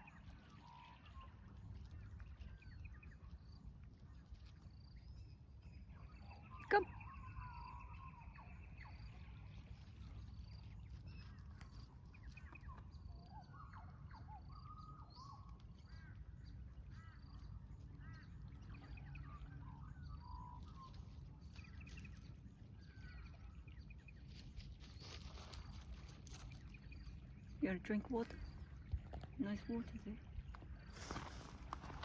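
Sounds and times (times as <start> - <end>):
faint bird calls: 11.2 - 32.0.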